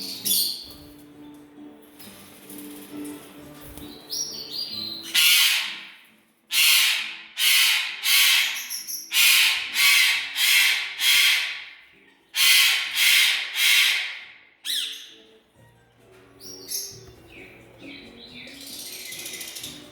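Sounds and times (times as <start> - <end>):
pet bird screeching: 4.9 - 5.9, 6.5 - 11.8, 12.4 - 15.2.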